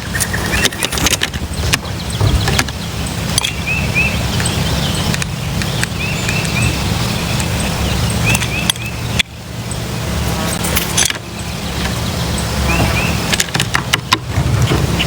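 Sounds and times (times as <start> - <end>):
steady low rumble: 0.0 - 15.0
wild birds calling: 0.0 - 15.0
sharp clicks: 4.4 - 6.7, 8.2 - 9.3.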